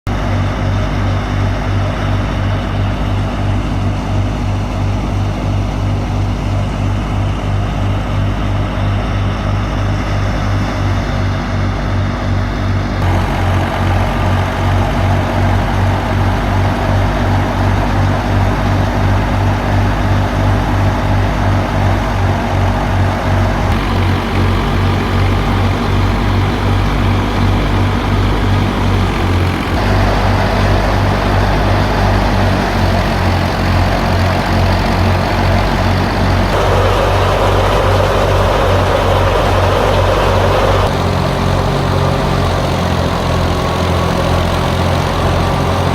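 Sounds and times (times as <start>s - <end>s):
tractor diesel engine running: 0.0s - 45.9s
thresher noise: 13.0s - 45.9s.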